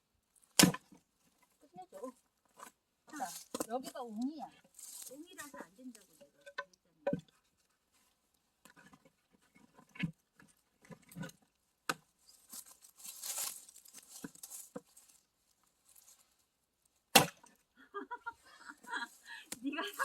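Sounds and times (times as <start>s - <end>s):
axe striking log: 0.6s - 1.0s, 17.1s - 17.5s.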